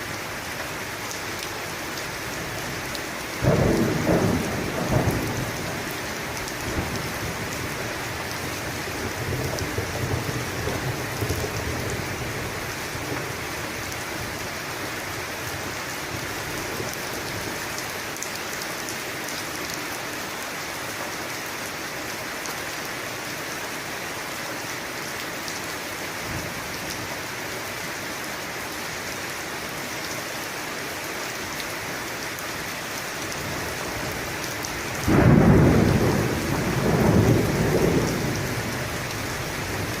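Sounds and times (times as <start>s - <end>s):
rain on a surface: 0.0s - 40.0s
thunder rumbling: 3.4s - 13.4s, 34.8s - 40.0s.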